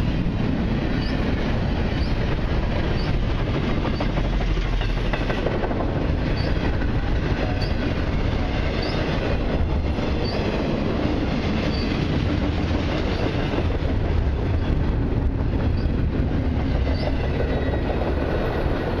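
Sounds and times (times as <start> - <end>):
freight cars rumbling on rails: 0.0 - 19.0.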